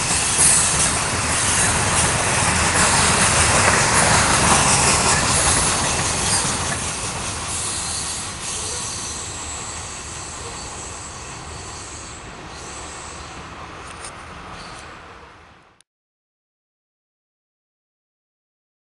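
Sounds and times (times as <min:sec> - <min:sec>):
freight train wheels rumbling: 0:00.0 - 0:15.6
faint high wheel squeal: 0:04.5 - 0:13.4.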